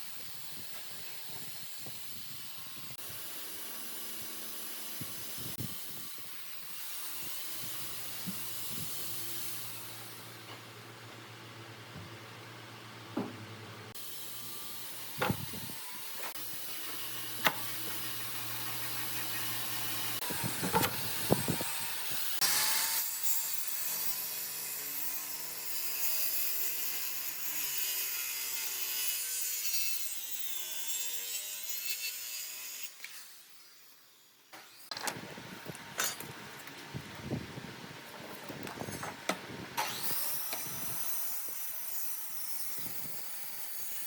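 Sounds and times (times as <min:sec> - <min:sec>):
tool rasping wood: 0:16.2 - 0:21.8.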